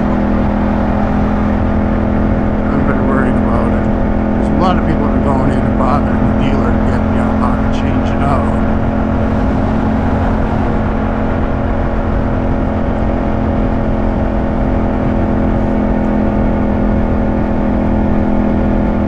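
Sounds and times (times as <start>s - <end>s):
motorcycle engine running steadily: 0.0s - 19.0s.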